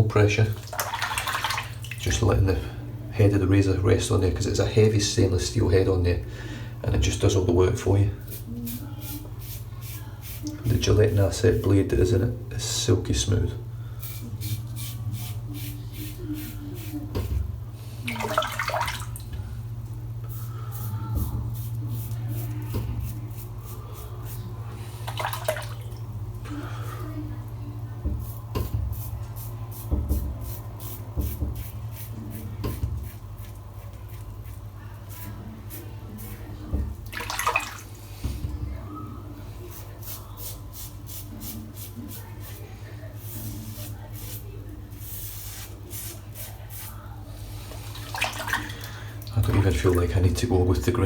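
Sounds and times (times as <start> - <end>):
razor rinsed with splash: 0.2 - 2.7, 7.8 - 11.8, 14.0 - 27.0, 28.1 - 38.5, 39.6 - 50.9
water splash: 0.5 - 2.0, 18.1 - 19.3, 25.0 - 26.0, 37.1 - 37.9, 47.9 - 48.9.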